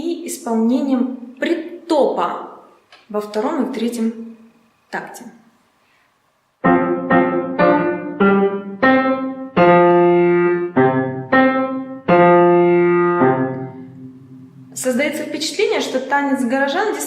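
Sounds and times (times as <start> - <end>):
piano chords: 6.6 - 15.4.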